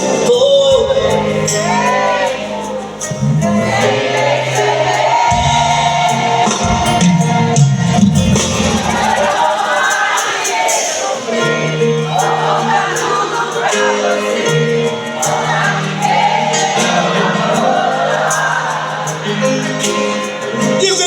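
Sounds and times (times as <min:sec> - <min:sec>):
bass line: 0:05.3 - 0:09.5.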